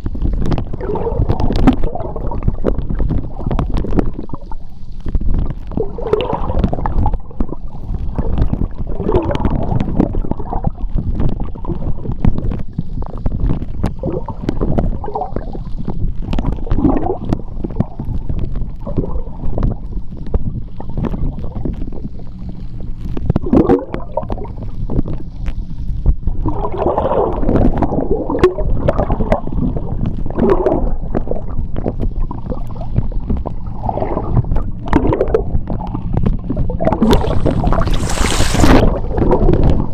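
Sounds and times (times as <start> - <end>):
underwater rumble of moving water: 0.0 - 39.9
water gurgling and bubbling: 0.5 - 4.5, 36.6 - 39.9
small underwater clicks and pops: 37.0 - 38.9.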